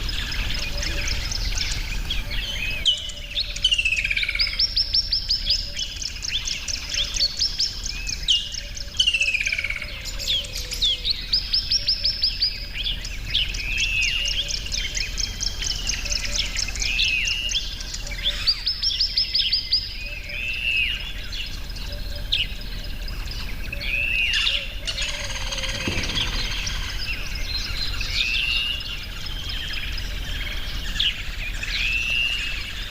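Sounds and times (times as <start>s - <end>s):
bird arching call: 23.9s - 28.8s
bird rapid trilling: 24.3s - 28.8s.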